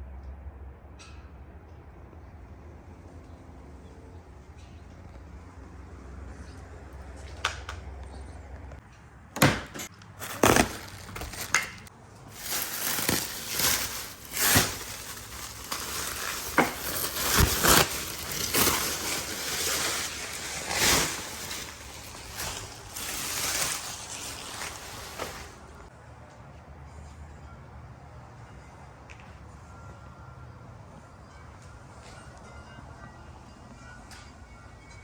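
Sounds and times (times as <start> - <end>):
packing material rustling: 9.4 - 25.9.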